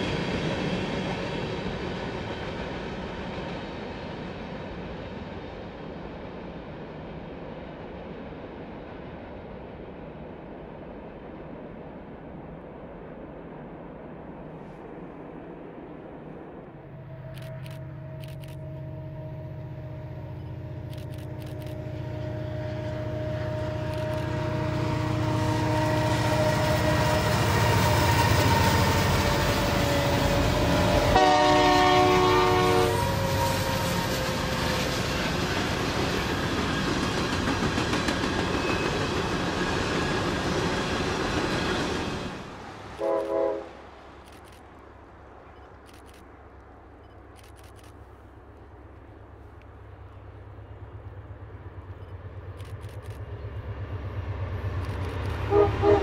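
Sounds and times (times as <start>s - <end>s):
train engine rumble: 0.0s - 56.0s
locomotive air horn: 17.0s - 20.6s, 21.8s - 34.9s, 43.0s - 43.8s, 55.5s - 56.0s.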